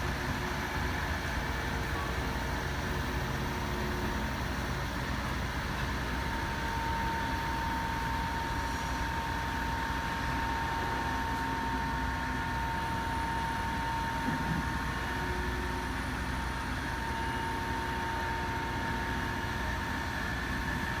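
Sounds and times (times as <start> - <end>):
engine drone: 0.0 - 21.0.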